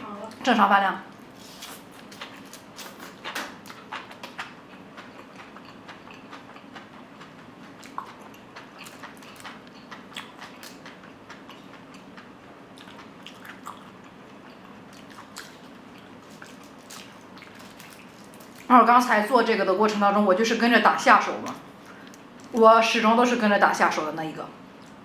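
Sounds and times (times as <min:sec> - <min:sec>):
chewing food: 0:01.6 - 0:18.7.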